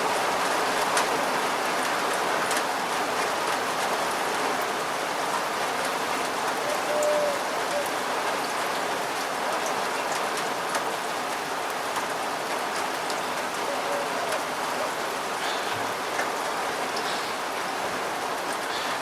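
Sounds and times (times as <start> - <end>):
steady rain falling: 0.0 - 19.0
raindrops ticking: 5.3 - 17.7.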